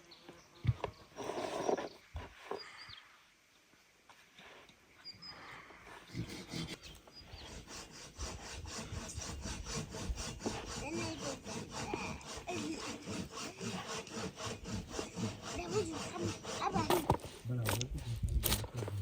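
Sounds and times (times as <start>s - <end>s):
rhythmic rasping strokes: 7.4s - 18.2s.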